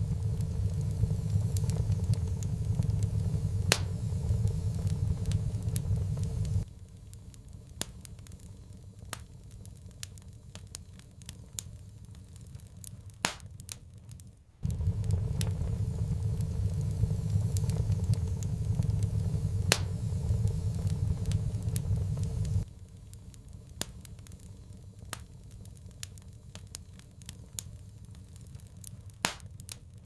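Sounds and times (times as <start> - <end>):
low rumble: 0.0 - 6.7, 14.6 - 22.7
sharp pops and snaps: 0.0 - 30.0
wood fire crackling: 0.0 - 30.0.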